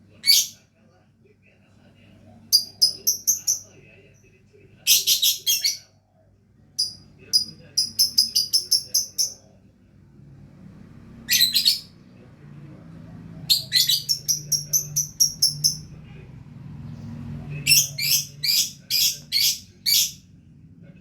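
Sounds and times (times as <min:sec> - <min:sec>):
bird chirping rapidly: 0:02.6 - 0:03.7, 0:06.8 - 0:09.4, 0:11.3 - 0:12.0, 0:13.5 - 0:15.9, 0:17.6 - 0:20.2.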